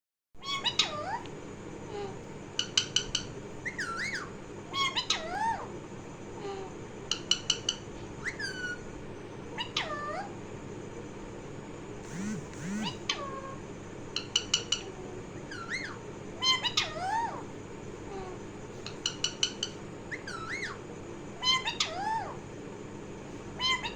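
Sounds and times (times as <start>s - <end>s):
parrot squawks: 0.4s - 1.2s, 2.6s - 5.7s, 15.5s - 17.5s, 18.9s - 20.8s, 21.4s - 22.4s, 23.6s - 23.9s.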